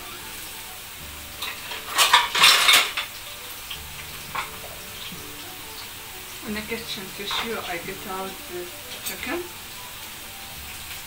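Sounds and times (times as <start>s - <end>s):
chicken sizzling in frying oil: 0.0s - 11.0s
dishes and utensils clattering: 1.4s - 5.2s, 6.8s - 8.0s, 8.9s - 9.4s.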